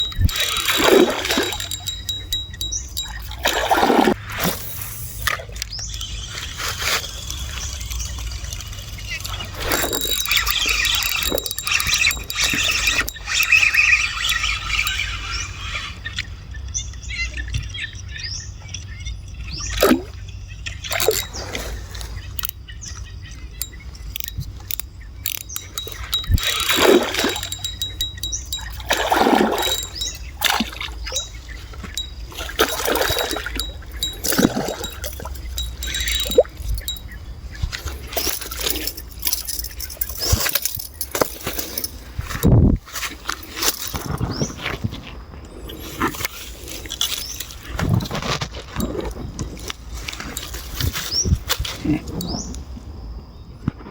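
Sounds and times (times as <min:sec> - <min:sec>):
fish splashing in water: 0:28.6 - 0:31.1, 0:31.8 - 0:36.9.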